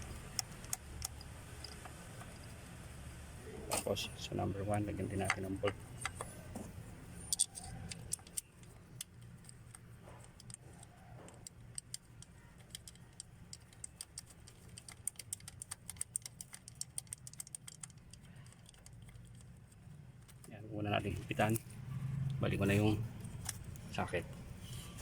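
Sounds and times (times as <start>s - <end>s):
low steady hum: 0.0s - 25.0s
rapid ratchet clicks: 7.3s - 20.5s.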